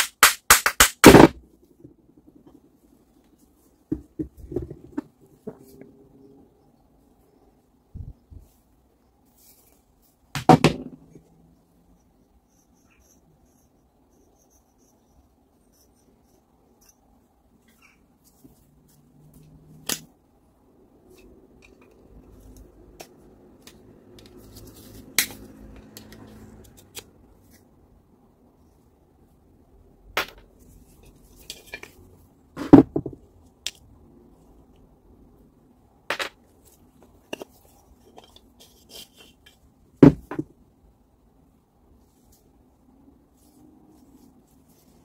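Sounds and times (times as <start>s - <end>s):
light rubbing and scraping: 30.6s - 32.8s, 36.5s - 39.7s.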